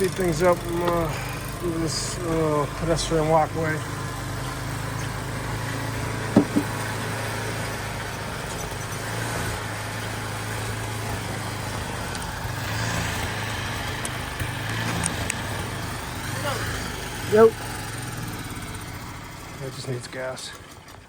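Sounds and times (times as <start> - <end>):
snow blower engine running: 0.0 - 21.0
sharp knock: 6.4 - 6.8.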